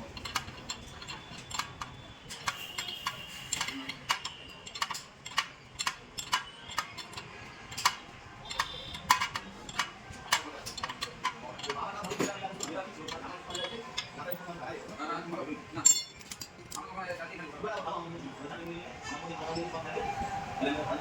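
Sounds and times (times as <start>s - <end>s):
sharp metallic clicks and taps: 0.0s - 14.4s.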